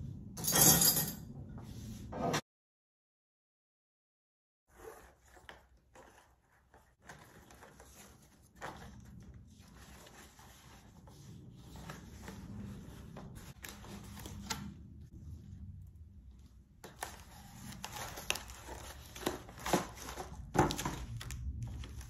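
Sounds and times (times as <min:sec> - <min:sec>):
ribbon and cardboard rustling: 0:04.7 - 0:15.5, 0:16.2 - 0:22.0
cardboard clicks and knocks: 0:17.9 - 0:21.4.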